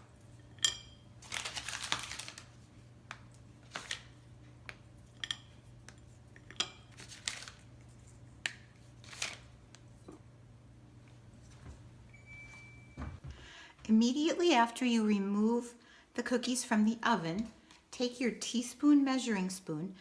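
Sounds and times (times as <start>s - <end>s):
wrapper rustling: 1.2s - 2.8s, 3.6s - 4.3s, 6.9s - 8.2s, 8.8s - 9.6s.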